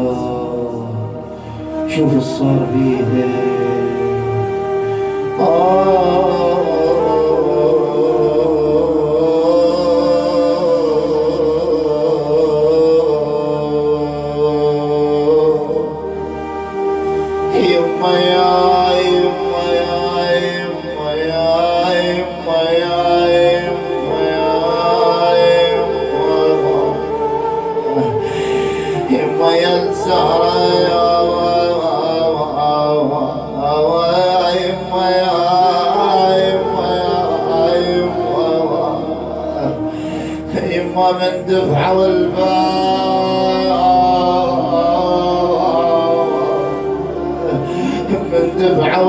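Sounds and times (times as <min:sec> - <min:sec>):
man chanting mournfully: 0:00.0 - 0:49.0
sustained background drone: 0:00.0 - 0:49.0.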